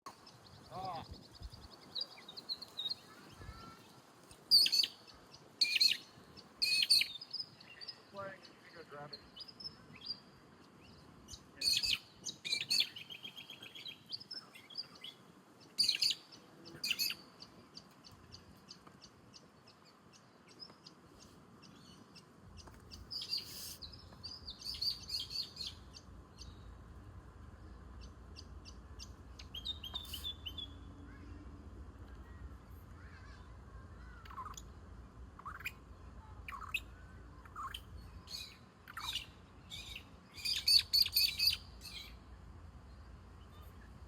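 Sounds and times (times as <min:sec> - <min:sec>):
wild birds chirping and trilling: 0:00.1 - 0:44.0
faint low rumble: 0:16.3 - 0:40.9, 0:41.6 - 0:44.0.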